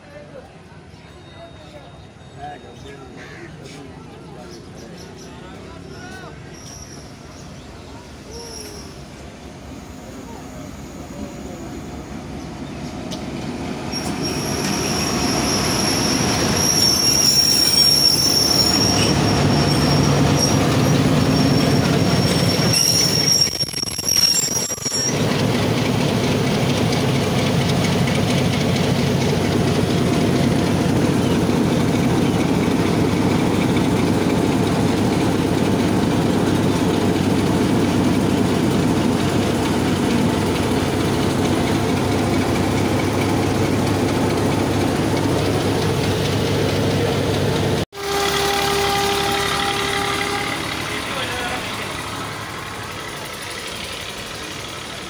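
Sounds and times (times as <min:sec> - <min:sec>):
train rolling past rumbling: 0:00.0 - 0:55.0
high wheel squeal: 0:05.8 - 0:07.4, 0:08.2 - 0:09.2, 0:13.8 - 0:25.4.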